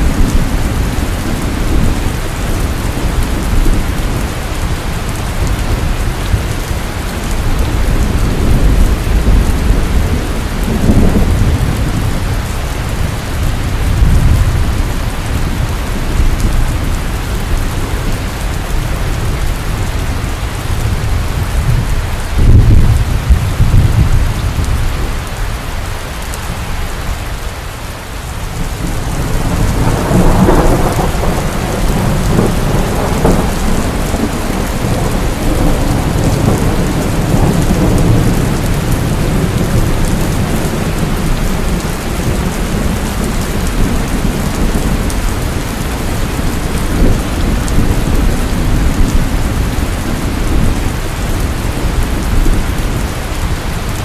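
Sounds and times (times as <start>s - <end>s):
thunder rumbling: 0.0s - 25.6s, 28.3s - 54.0s
heavy rain falling: 0.0s - 54.0s.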